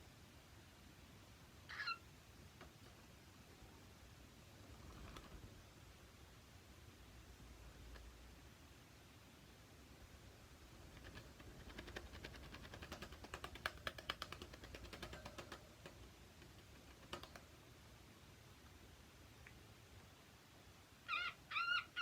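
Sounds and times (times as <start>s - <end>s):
cockatiels clicking: 10.9s - 17.5s.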